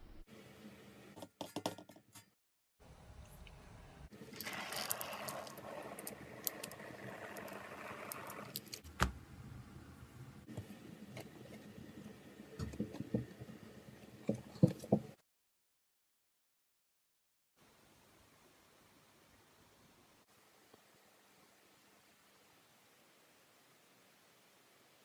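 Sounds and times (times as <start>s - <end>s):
slime scraping and squishing: 4.3s - 8.9s.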